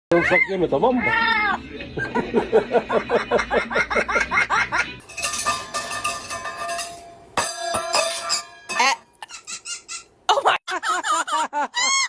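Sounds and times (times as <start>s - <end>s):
hissy clattering: 5.0s - 9.0s
thin ringing tones: 5.0s - 9.2s
parrot mimicking laughter: 9.2s - 12.0s.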